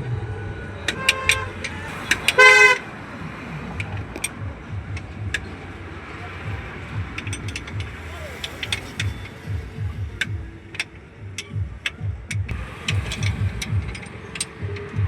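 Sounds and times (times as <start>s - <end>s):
hand tools clicking and tapping: 0.9s - 2.8s, 3.7s - 15.0s
vehicle horn toot: 0.9s - 3.0s.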